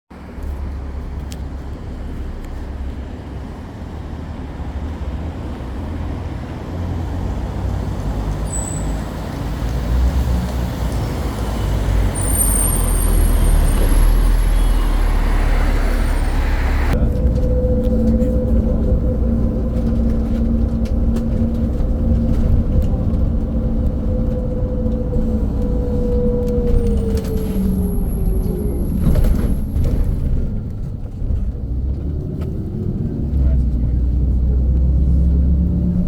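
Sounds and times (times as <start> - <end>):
bus engine and road rumble: 0.1 - 36.0.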